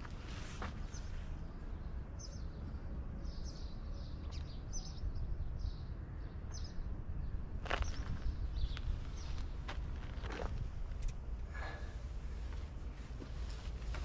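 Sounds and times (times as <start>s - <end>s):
small birds chirping: 0.0s - 14.0s
steady low rumble: 4.8s - 14.0s.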